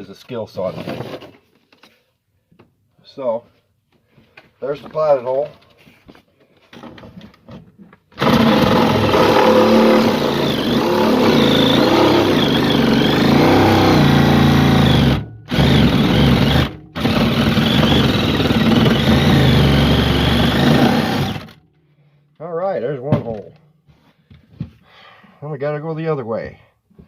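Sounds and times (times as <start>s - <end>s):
electric saw cutting floor: 8.2s - 21.6s.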